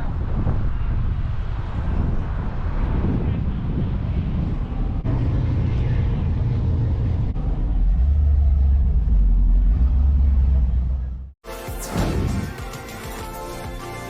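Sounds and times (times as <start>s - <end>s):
car engine rumbling: 3.1s - 11.4s.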